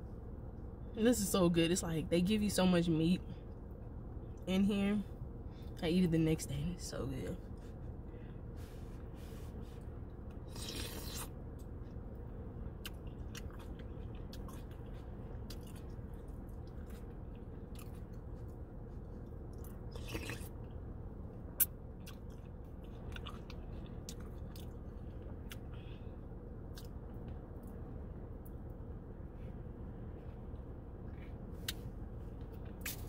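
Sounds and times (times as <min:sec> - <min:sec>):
low steady rumble: 0:00.0 - 0:33.0
person chewing with wet mouth sounds: 0:09.6 - 0:20.8, 0:21.5 - 0:27.8
slurps: 0:10.4 - 0:11.3, 0:19.9 - 0:20.6.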